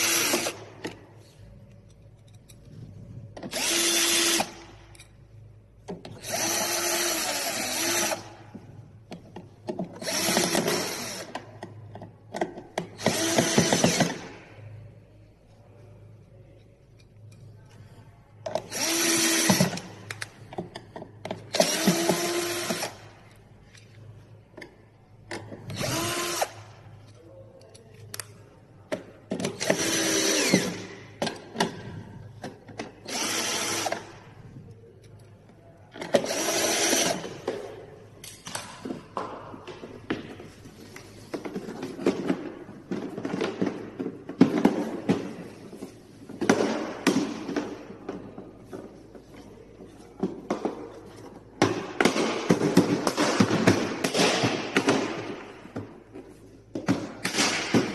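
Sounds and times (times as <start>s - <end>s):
knocks and clatter of handling: 37.4s - 57.9s.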